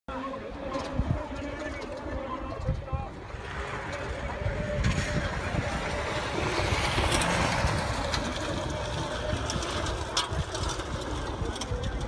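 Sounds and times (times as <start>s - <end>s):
wind rumble on microphone: 0.1s - 12.0s
distant car engine: 3.1s - 12.0s.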